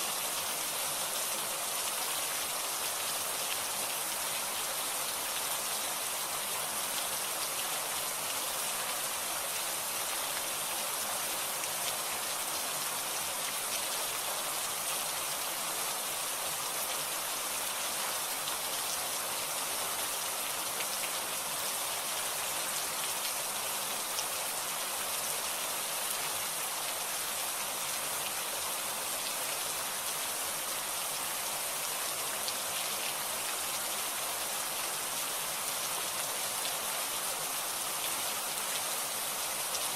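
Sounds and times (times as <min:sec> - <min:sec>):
rain pattering on a surface: 0:00.2 - 0:15.7.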